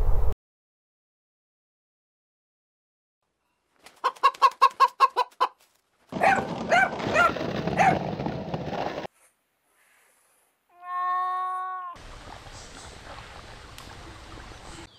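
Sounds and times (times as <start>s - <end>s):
chickens clucking: 3.9s - 5.6s
background hiss: 9.1s - 10.8s.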